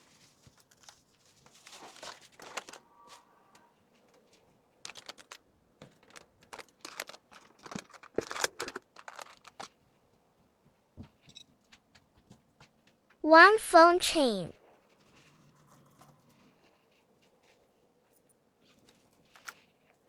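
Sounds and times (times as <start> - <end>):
packaging crinkling and rustling: 0.0 - 3.1, 4.0 - 9.8.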